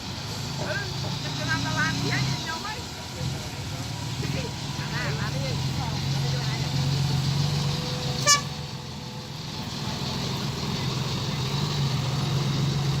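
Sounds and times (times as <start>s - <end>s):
heavy vehicle engine running: 0.0s - 13.0s
short horn toot: 8.2s - 8.6s.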